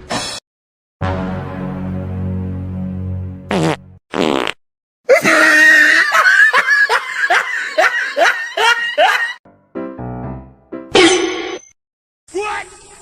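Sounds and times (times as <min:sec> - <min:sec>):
music: 0:01.0 - 0:04.0, 0:09.4 - 0:11.0
person laughing: 0:05.1 - 0:09.4.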